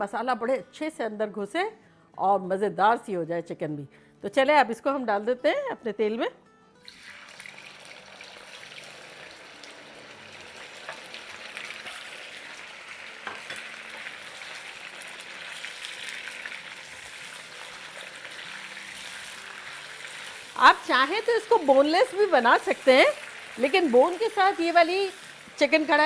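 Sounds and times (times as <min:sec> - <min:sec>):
chicken sizzling in hot oil: 0:06.8 - 0:26.0.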